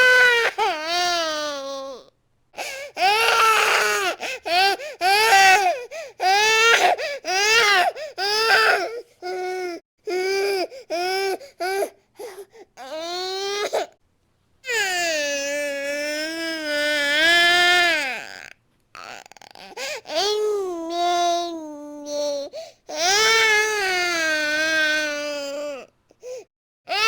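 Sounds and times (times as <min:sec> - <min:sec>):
baby crying: 0:00.0 - 0:02.0, 0:02.6 - 0:13.9.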